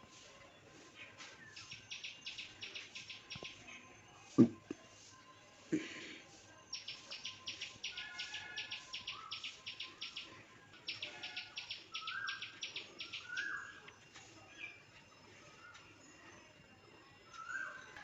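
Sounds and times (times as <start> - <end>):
bird chirping: 1.1 - 4.0, 6.7 - 16.5.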